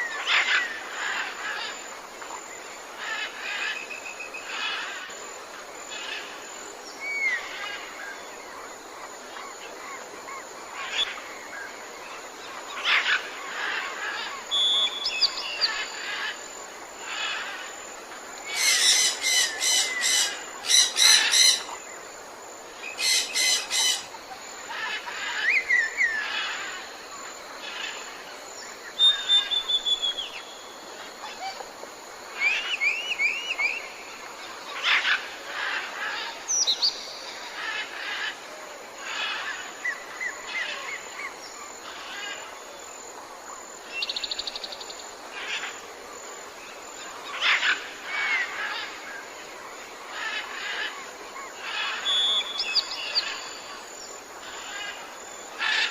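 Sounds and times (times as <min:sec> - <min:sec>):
background hiss: 0:00.0 - 0:55.9
birds chirping: 0:18.5 - 0:22.0, 0:22.9 - 0:26.7.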